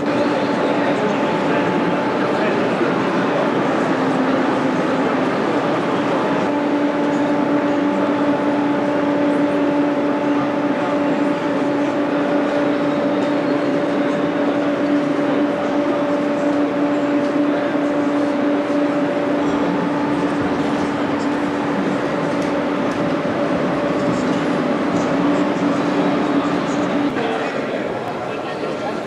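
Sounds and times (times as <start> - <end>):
vehicle running noise: 0.0 - 27.2.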